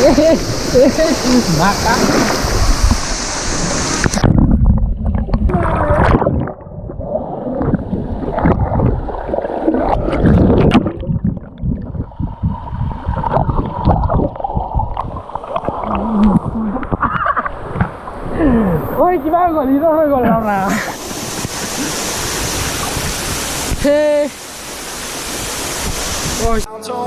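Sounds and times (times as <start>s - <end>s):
waterfall rushing: 0.0s - 4.2s, 17.6s - 27.0s
muffled water sloshing and gurgling: 0.0s - 19.2s.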